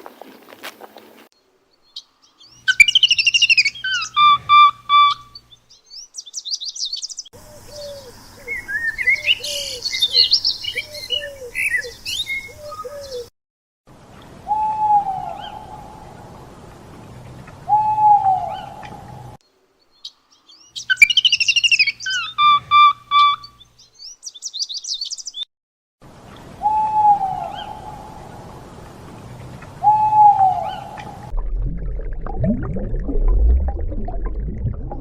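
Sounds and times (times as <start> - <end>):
birds twittering chirps: 0.2 - 13.3, 17.4 - 25.5
falling bird whistle: 2.7 - 5.4.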